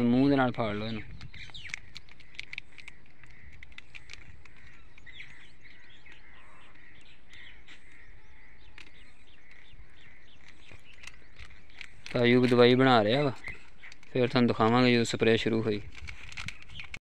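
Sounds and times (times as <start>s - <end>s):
small birds chirping: 0.0s - 17.0s
steady outdoor background: 0.0s - 17.0s.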